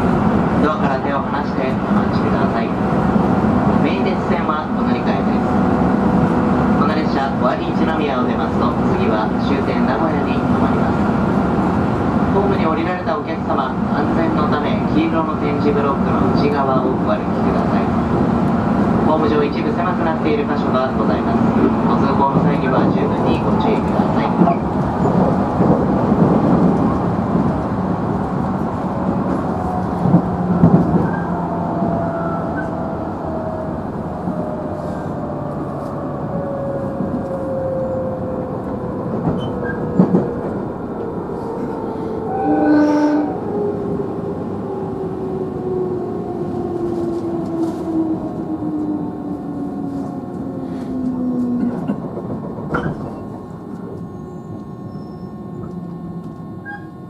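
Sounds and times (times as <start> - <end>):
train running rumble: 0.0 - 57.0
rail joint clacks: 38.6 - 41.9, 50.8 - 57.0
brief tone: 54.0 - 55.8, 56.6 - 57.0.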